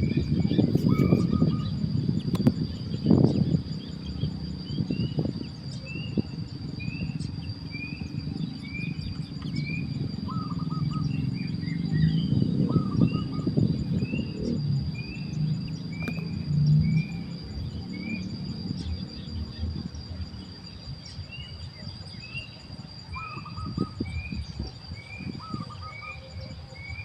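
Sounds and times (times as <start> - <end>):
low bird call notes: 0.0 - 19.6
high insect drone: 0.0 - 27.0
small birds chirping: 0.0 - 27.0.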